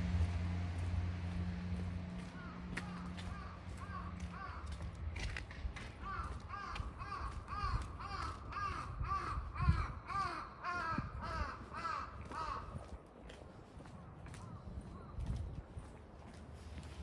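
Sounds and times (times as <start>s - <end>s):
crow cawing: 2.4s - 4.8s, 6.0s - 12.9s.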